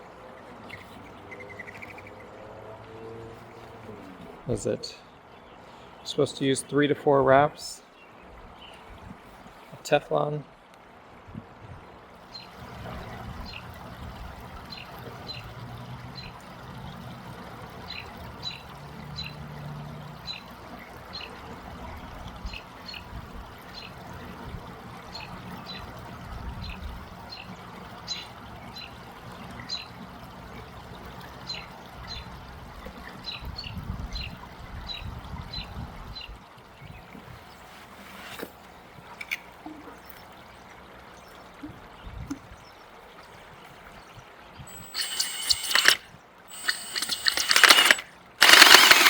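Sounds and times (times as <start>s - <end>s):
water trickling: 0.0s - 6.1s, 11.9s - 49.0s
bird chirping: 0.6s - 2.3s.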